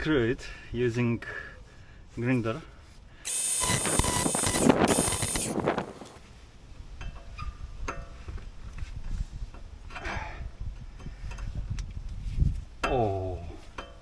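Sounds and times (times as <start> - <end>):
grinder running: 3.3 - 6.2.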